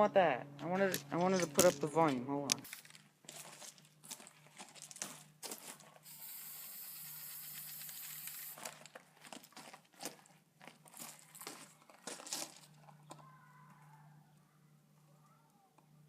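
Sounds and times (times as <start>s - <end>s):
handling clicks and rustling: 0.6s - 6.0s
aerosol spray can hissing: 6.0s - 8.7s.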